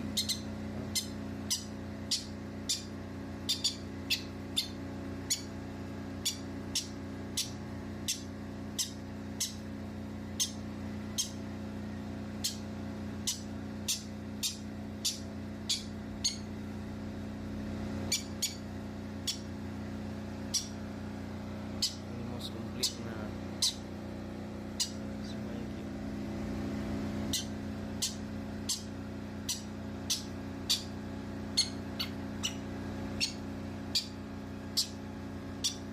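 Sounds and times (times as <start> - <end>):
baby bird chirping: 0.0 - 5.6, 6.2 - 9.7, 10.3 - 11.4, 12.4 - 16.5, 18.1 - 19.5, 20.4 - 20.8, 21.8 - 23.9, 24.8 - 25.0, 27.3 - 30.9, 31.5 - 35.0, 35.6 - 35.9
steady low hum: 0.0 - 35.9.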